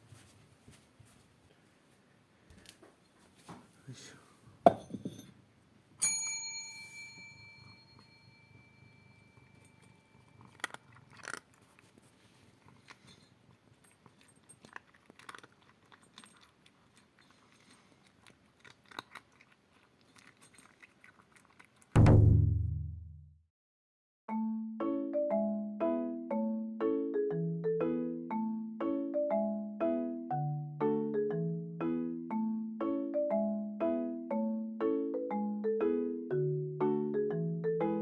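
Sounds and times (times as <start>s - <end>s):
metal object ringing: 6.0s - 10.2s
cat crunching dry food: 10.2s - 21.9s.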